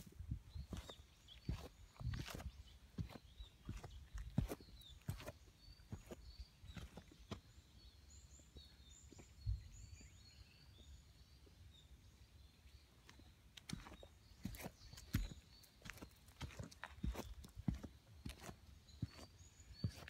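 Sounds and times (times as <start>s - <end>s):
footsteps on dirt path: 0.0s - 7.7s, 13.1s - 20.0s.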